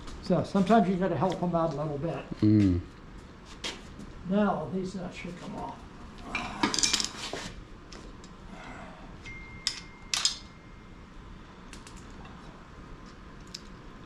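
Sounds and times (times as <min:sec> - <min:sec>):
hand tools clinking on metal: 0:06.4 - 0:07.2, 0:09.3 - 0:10.6.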